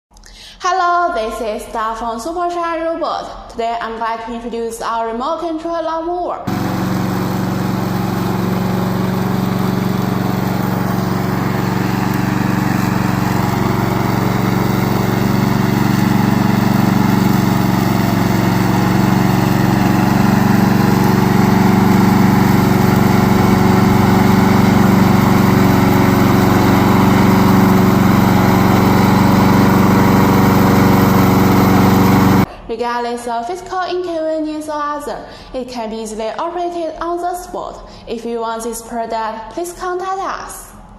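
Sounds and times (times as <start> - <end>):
lawn mower engine running: 6.5 - 32.5.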